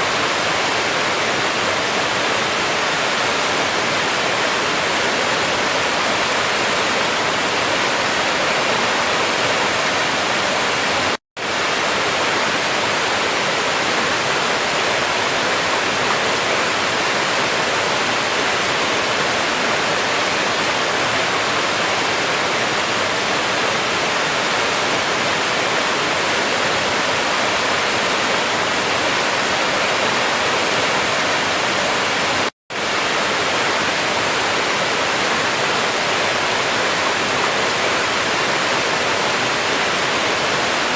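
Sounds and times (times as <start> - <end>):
waterfall pouring: 0.0 - 13.2, 19.0 - 33.4.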